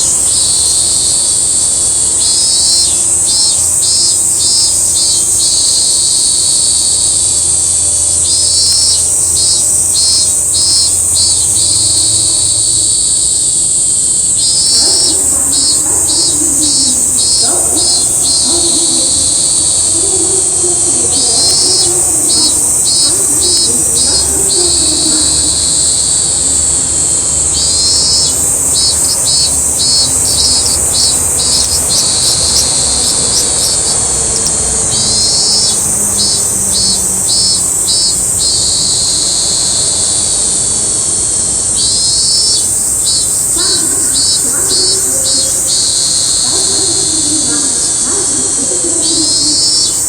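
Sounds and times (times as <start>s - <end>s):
cicadas calling in pulses: 0.0s - 50.0s
continuous high-pitched buzz: 0.0s - 50.0s.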